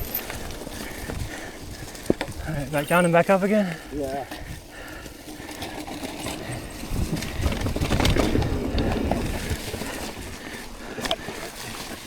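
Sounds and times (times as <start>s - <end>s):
bike rattling and clicking: 0.0s - 12.0s
bike tyres on dirt: 0.0s - 12.0s
wind rumble on microphone: 6.2s - 10.8s.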